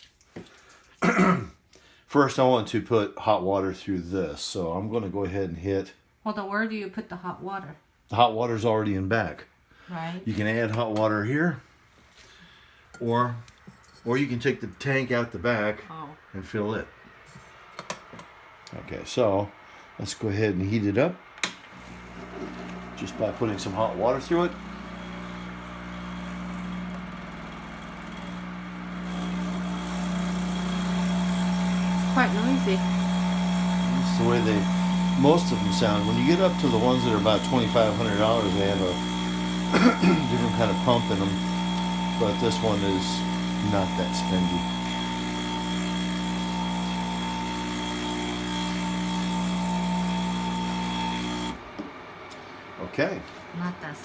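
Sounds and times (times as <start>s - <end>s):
espresso machine pump humming: 21.7s - 51.9s.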